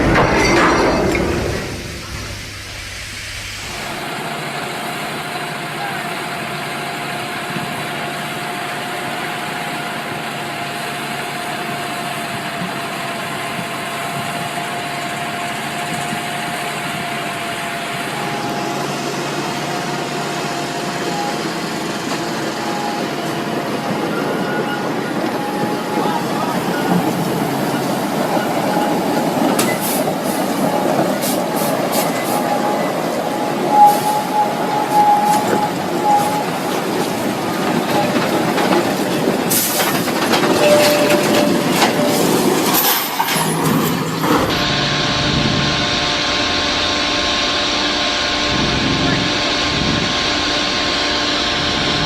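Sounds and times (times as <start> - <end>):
vehicle running noise: 0.0 - 52.0
thin steady whine: 17.6 - 38.6, 44.5 - 52.0.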